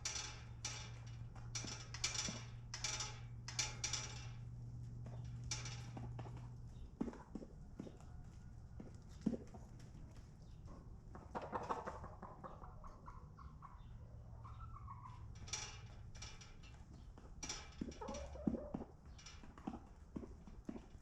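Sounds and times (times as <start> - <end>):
chickens clucking: 7.0 - 15.4, 17.9 - 18.9.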